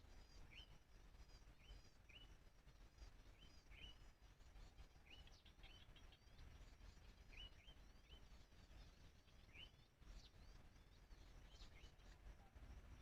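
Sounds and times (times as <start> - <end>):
low steady rumble: 0.0 - 13.0
small birds chirping: 0.0 - 13.0.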